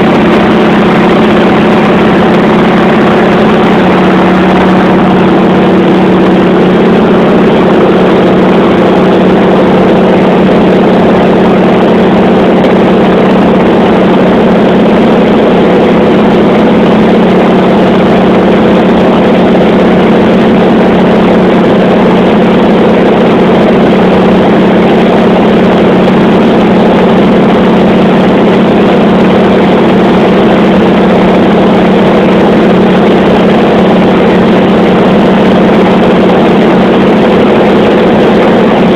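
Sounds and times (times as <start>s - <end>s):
aircraft piston engine droning: 0.0s - 29.0s.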